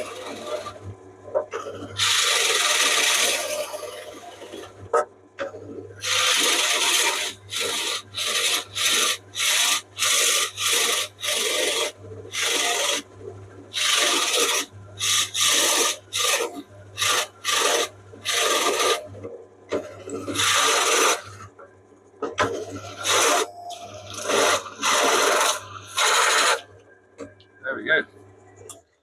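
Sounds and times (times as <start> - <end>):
hole saw rasping through plywood: 0.0 - 0.8, 1.6 - 4.6, 6.0 - 13.1, 13.7 - 19.1, 19.8 - 21.4, 22.8 - 26.7
drill motor hum: 1.9 - 4.6, 6.0 - 13.1, 13.7 - 19.1, 19.7 - 21.4, 22.4 - 26.7.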